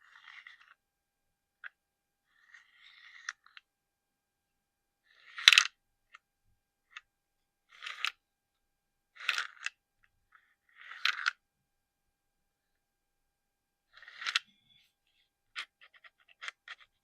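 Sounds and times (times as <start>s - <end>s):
scratching on plastic collectibles: 0.0s - 0.8s, 1.6s - 3.7s, 5.1s - 6.2s, 6.9s - 8.2s, 9.1s - 11.4s, 13.9s - 17.0s.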